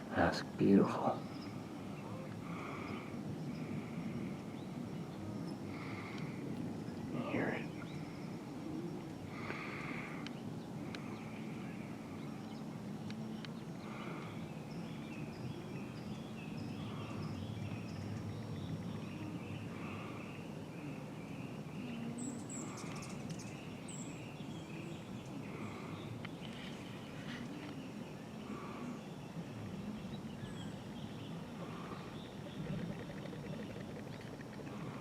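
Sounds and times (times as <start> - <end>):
birds calling: 0.0 - 35.0
low background noise: 0.0 - 35.0.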